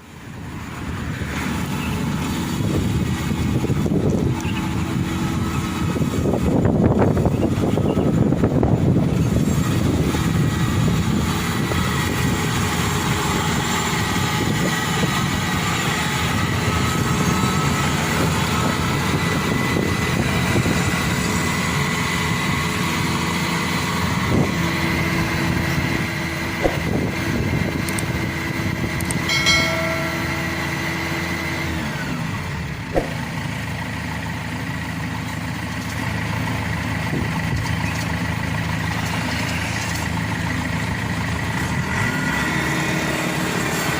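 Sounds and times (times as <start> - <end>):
diesel engine running: 0.0 - 43.9
low hum: 24.3 - 34.3
sharp knocks: 26.6 - 27.2, 32.9 - 33.4
high-pitched whine: 29.1 - 33.5.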